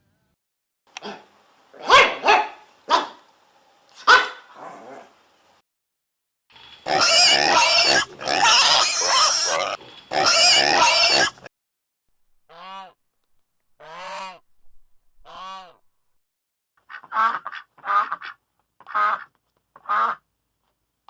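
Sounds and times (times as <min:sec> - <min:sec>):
harsh animal calls: 0:06.8 - 0:11.5.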